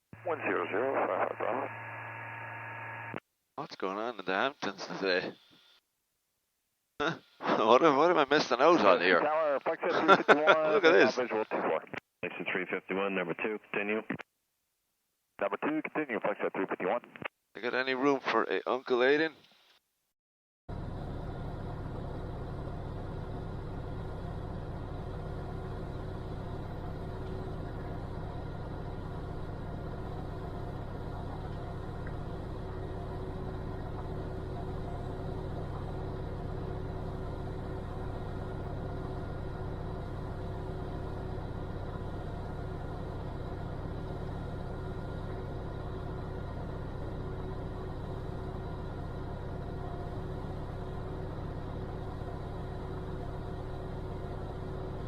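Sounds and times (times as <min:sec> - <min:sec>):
airplane engine and propeller drone: 0:00.2 - 0:02.6, 0:20.7 - 0:55.0.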